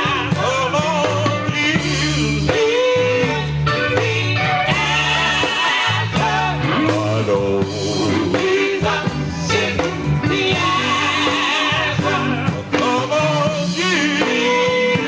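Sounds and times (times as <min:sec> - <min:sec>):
gospel group singing: 0:00.0 - 0:15.0
guitar accompaniment: 0:00.0 - 0:15.0.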